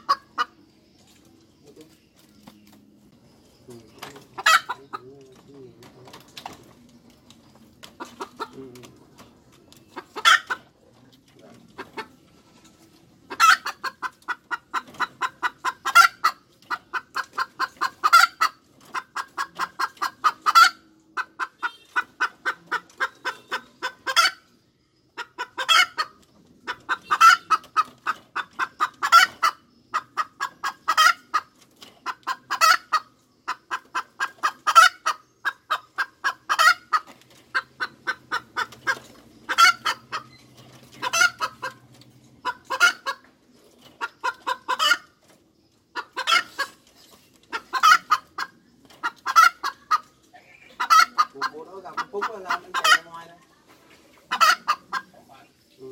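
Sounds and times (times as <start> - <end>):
hen cackling: 0.0 - 0.6, 3.7 - 5.2, 10.0 - 10.9, 13.2 - 24.5, 25.1 - 43.3, 44.0 - 45.2, 45.9 - 46.8, 47.5 - 53.4, 54.2 - 55.4.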